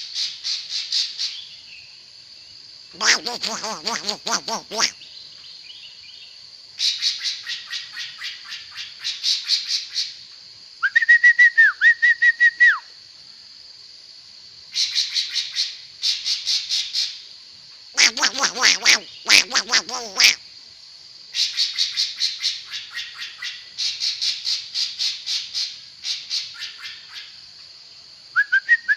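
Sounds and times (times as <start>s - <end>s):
songbird singing: 1.1s - 9.2s, 18.0s - 20.4s.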